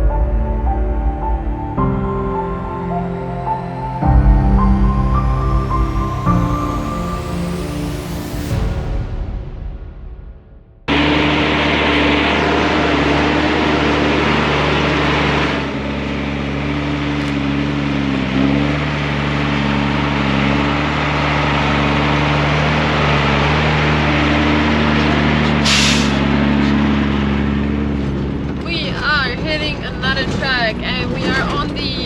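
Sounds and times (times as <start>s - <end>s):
road and rattle noise: 0.0s - 4.2s, 10.9s - 32.0s
truck engine drone: 0.0s - 32.0s.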